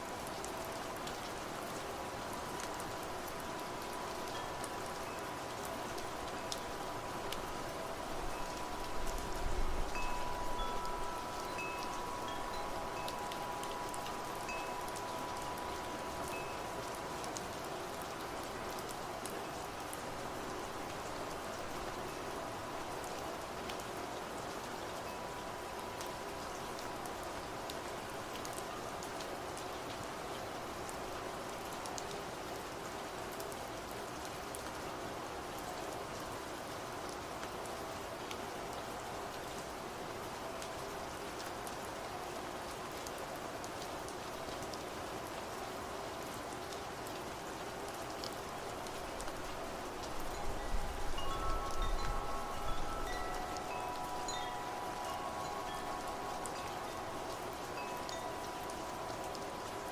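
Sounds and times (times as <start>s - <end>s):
steady rain: 0.0s - 59.9s
wind chimes ringing: 3.4s - 17.5s, 49.6s - 59.9s.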